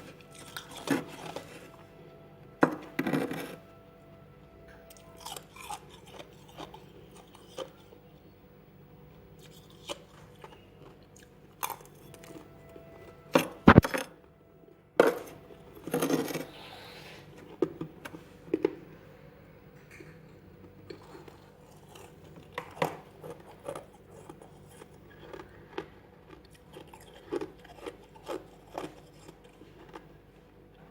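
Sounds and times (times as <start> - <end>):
frost being chewed crunching: 0.0 - 2.2, 2.8 - 8.3, 9.1 - 13.9, 19.9 - 30.8.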